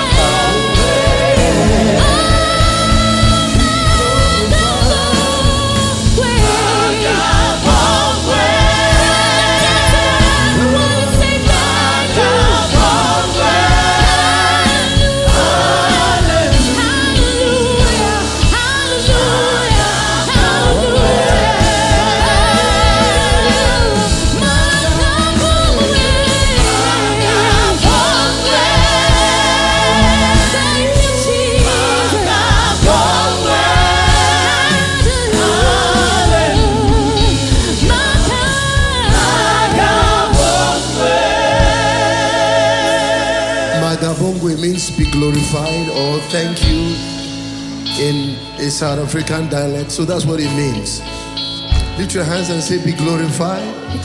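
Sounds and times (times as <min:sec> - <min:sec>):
gospel choir singing: 0:00.0 - 0:50.8.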